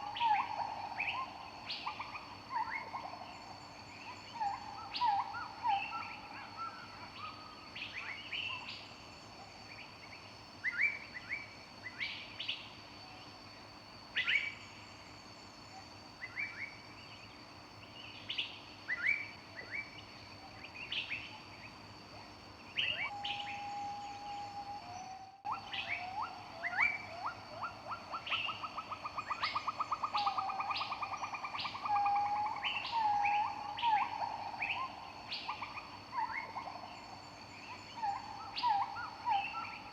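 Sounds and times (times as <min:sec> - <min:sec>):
songbirds singing and chirping: 0:00.0 - 0:12.8, 0:14.0 - 0:39.9.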